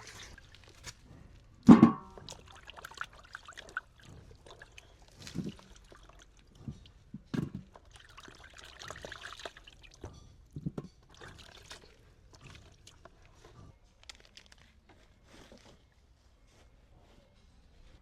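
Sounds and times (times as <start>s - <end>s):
water pouring and trickling: 0.0s - 13.5s.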